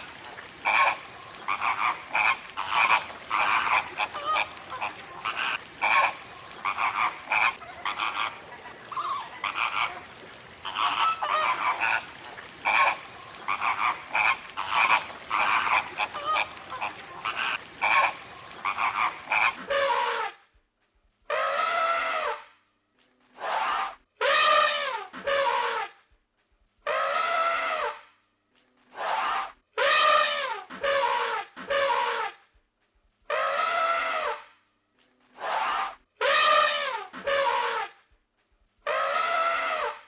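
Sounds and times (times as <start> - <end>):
long rising and falling animal calls: 0.0 - 19.6
chorus of short animal calls: 0.0 - 20.2.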